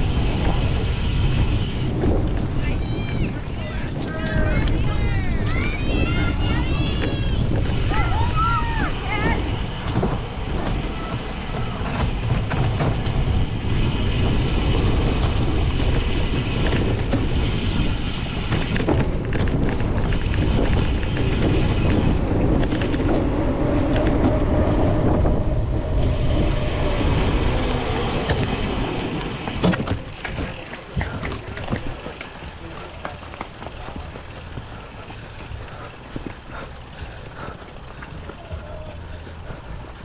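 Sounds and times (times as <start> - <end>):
bike rattling over rough ground: 0.0 - 40.0
wind buffeting microphone: 0.0 - 40.0.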